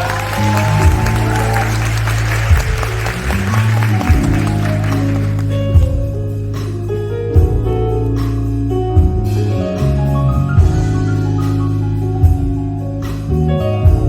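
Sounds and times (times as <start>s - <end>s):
slow drum beat: 0.0s - 9.6s
bass line: 0.0s - 14.0s
keyboard chords: 0.0s - 14.0s.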